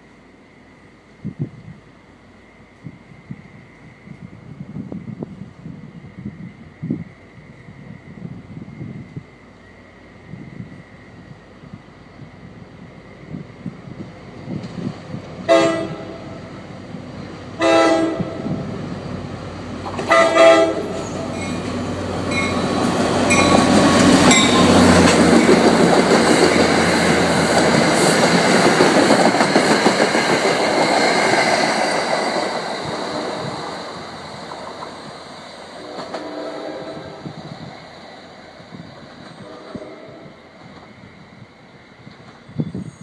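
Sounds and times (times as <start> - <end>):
train wheel and rail noise: 0.0 - 43.0
train horn blasts: 15.4 - 16.5, 17.6 - 18.6, 19.9 - 21.5, 35.7 - 37.4, 39.3 - 40.5.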